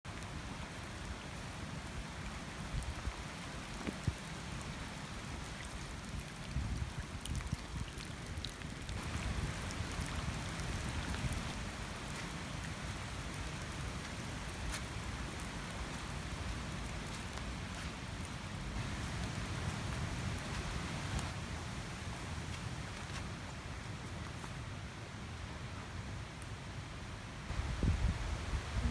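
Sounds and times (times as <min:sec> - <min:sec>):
steady rain falling: 0:00.0 - 0:28.9.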